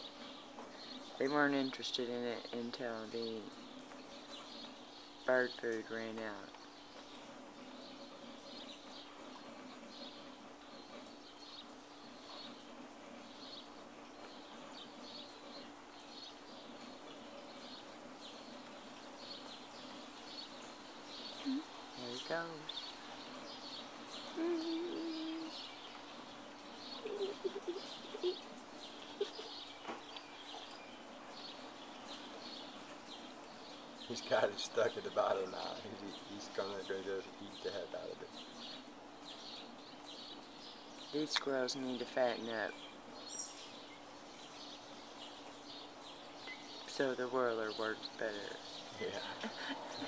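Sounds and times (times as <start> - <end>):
bird chirping: 13.2 - 50.0.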